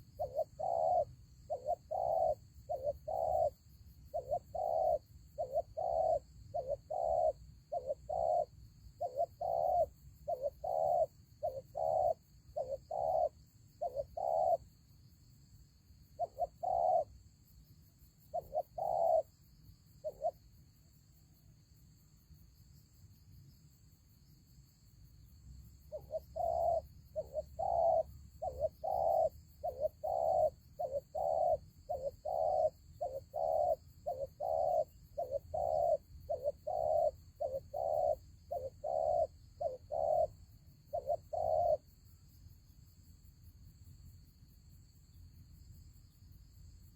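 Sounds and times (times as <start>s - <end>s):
dove cooing: 0.0s - 14.7s, 16.2s - 17.2s, 18.3s - 19.3s, 20.0s - 20.4s, 25.9s - 41.9s.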